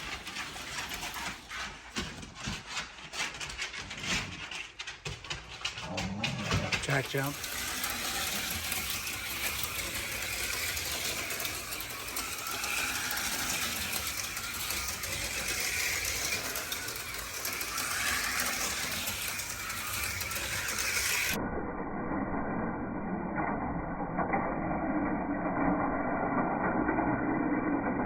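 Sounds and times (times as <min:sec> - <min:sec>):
slot car motors whirring: 0:06.5 - 0:21.4.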